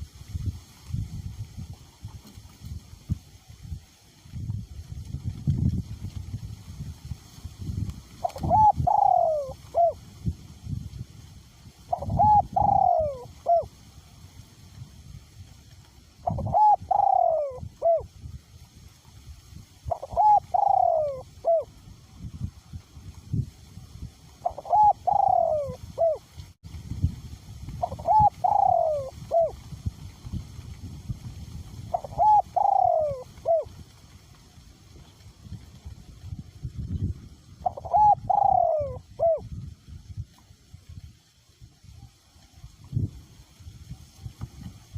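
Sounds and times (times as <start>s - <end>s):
wind buffeting microphone: 0.0s - 44.9s
dove cooing: 8.2s - 10.0s, 11.9s - 13.7s, 16.2s - 18.1s, 19.9s - 21.7s, 24.4s - 26.3s, 27.8s - 29.6s, 31.8s - 33.8s, 37.6s - 39.5s.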